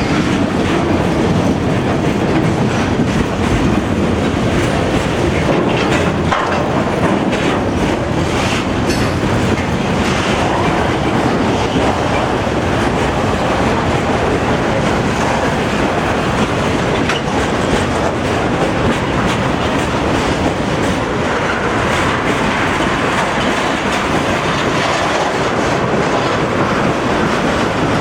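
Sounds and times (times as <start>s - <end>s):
train cars rumbling past: 0.0s - 28.0s
wheels clacking over rail joints: 0.0s - 28.0s.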